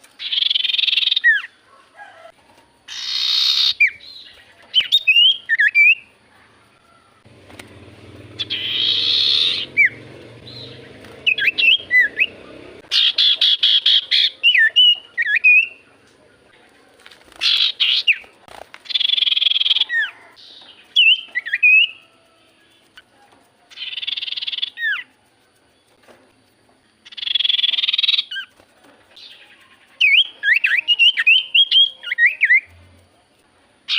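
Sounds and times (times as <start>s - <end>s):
bird rasping chatters: 2.9s - 6.0s, 7.6s - 16.0s, 17.3s - 22.0s, 23.7s - 25.2s, 27.0s - 32.7s
bird whistled notes: 8.4s - 15.8s, 20.9s - 22.0s, 23.8s - 25.1s.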